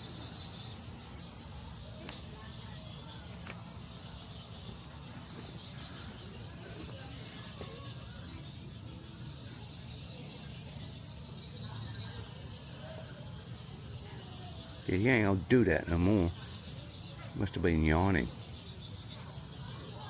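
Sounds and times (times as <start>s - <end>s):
insects pulsing buzz: 0.0s - 20.0s.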